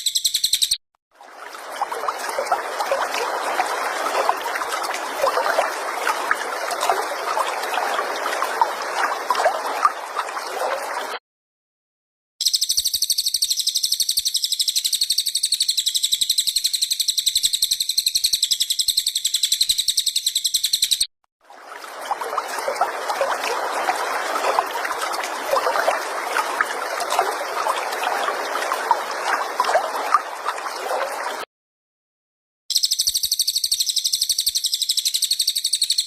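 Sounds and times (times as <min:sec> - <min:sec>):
high-pitched bird trill: 0:00.0 - 0:00.8, 0:12.4 - 0:21.1, 0:32.7 - 0:36.0.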